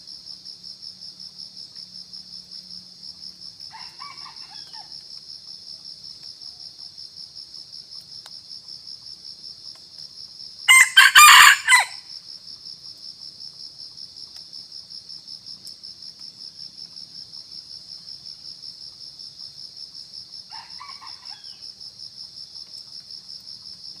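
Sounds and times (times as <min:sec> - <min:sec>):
pulsing insect chorus: 0:00.0 - 0:24.0
rooster crowing: 0:03.7 - 0:05.0, 0:10.7 - 0:12.0, 0:20.5 - 0:21.6.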